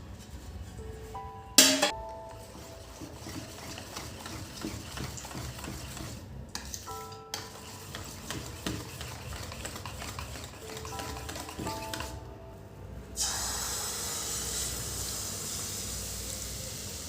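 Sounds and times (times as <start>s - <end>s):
spoon scraping a cooking pan: 2.3s - 12.1s.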